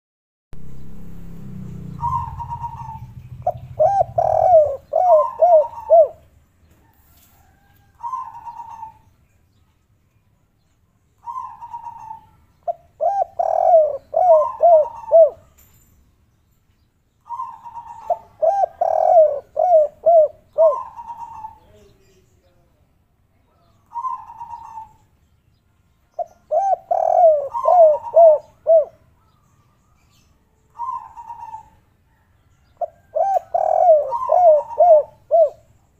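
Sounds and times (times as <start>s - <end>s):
dove cooing: 1.8s - 6.3s, 7.4s - 9.1s, 11.2s - 15.6s, 17.3s - 21.9s, 23.9s - 25.1s, 26.2s - 29.1s, 30.7s - 35.9s.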